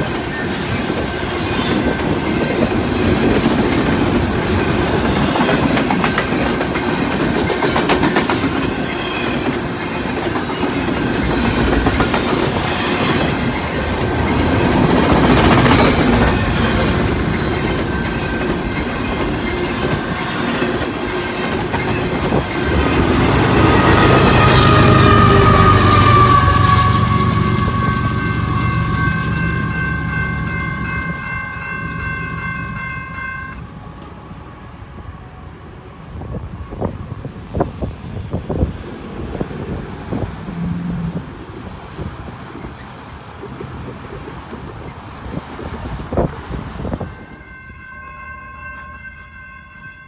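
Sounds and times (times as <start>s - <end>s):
wheels clacking over rail joints: 0.0s - 24.5s
freight train wheels rumbling: 0.0s - 50.0s.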